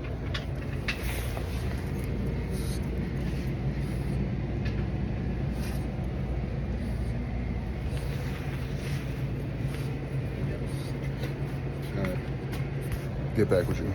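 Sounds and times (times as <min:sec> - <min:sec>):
faint rustles: 0:00.0 - 0:13.3
low indoor hum: 0:00.0 - 0:13.9.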